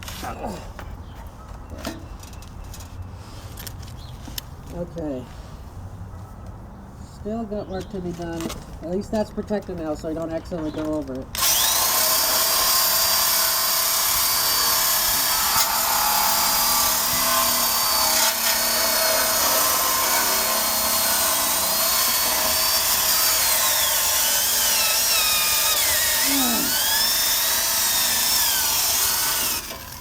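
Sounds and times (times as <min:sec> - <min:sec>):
drill wire brush scrubbing metal: 0:11.4 - 0:30.0.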